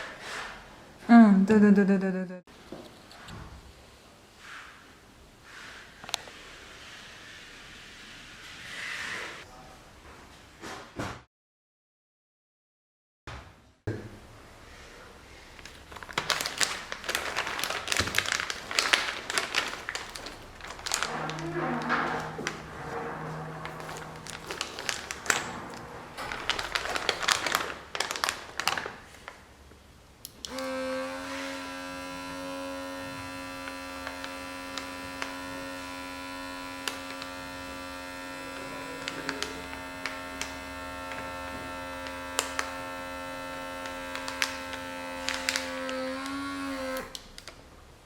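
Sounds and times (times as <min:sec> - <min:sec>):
vacuum sealer pump humming: 0:15.4 - 0:29.6, 0:30.2 - 0:47.5.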